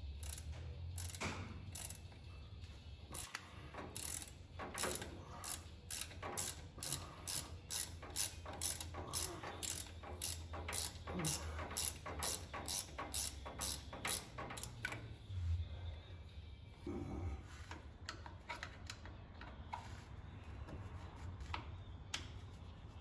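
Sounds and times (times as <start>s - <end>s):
ratchet wrench clicking: 0.1s - 2.1s, 3.1s - 15.0s.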